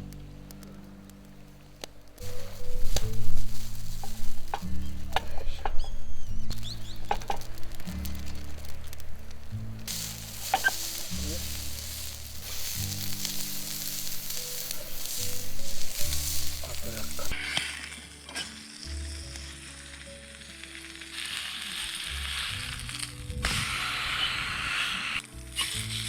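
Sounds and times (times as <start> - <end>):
meat sizzling in a pan: 2.2 - 26.0.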